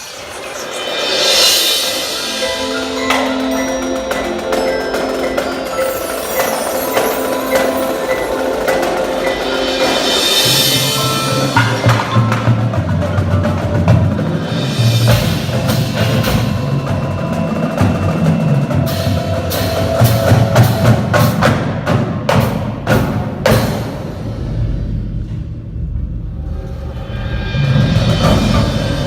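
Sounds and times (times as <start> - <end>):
percussion ensemble playing: 0.0 - 25.2, 26.6 - 29.0.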